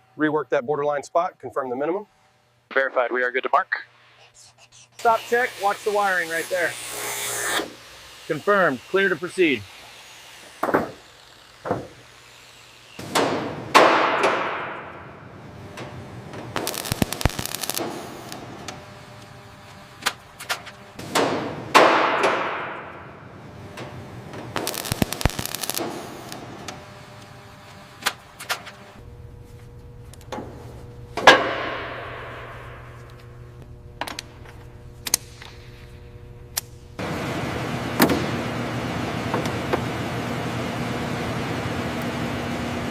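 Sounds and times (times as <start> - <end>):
heavy metallic clangs: 21.0 - 23.2
low steady hum: 29.0 - 41.6.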